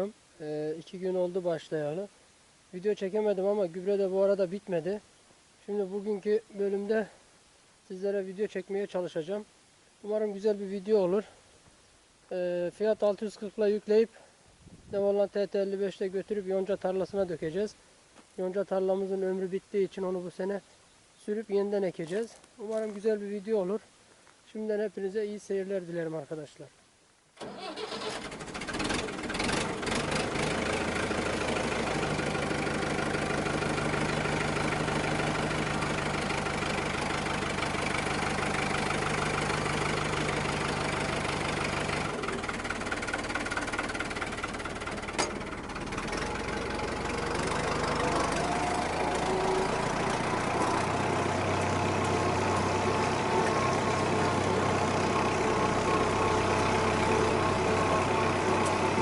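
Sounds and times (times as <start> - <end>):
tractor diesel engine running: 27.4 - 59.0.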